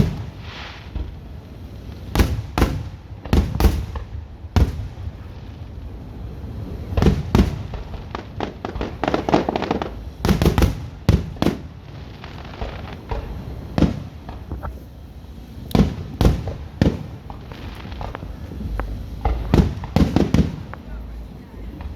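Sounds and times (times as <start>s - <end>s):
firework crackling: 0.0s - 21.9s
firework shells bursting: 6.6s - 21.9s.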